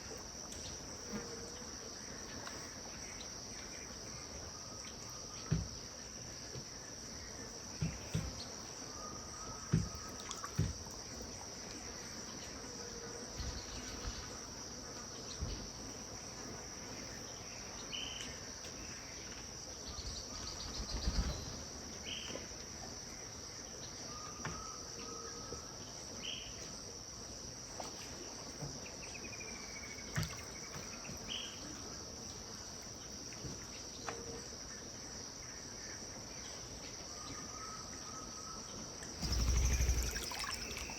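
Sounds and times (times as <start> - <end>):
bird calls: 39.2 - 40.9
high insect drone: 39.2 - 40.9
water sounds: 39.2 - 40.9.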